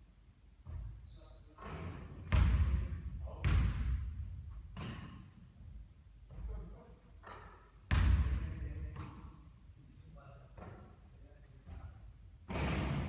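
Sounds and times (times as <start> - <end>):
basketball thudding with echo: 1.6 - 5.4, 7.9 - 9.4.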